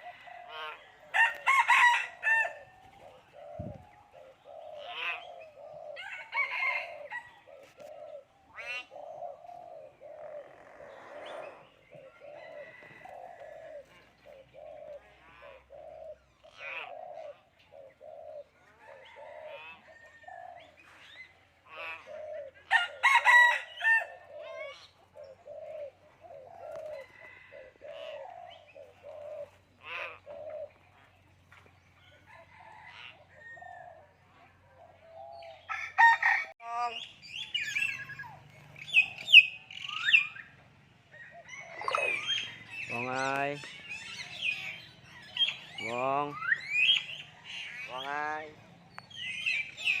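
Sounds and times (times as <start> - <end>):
bird whistles and squawks: 41.5 - 42.9, 43.6 - 47.8
myna calling: 41.5 - 50.0.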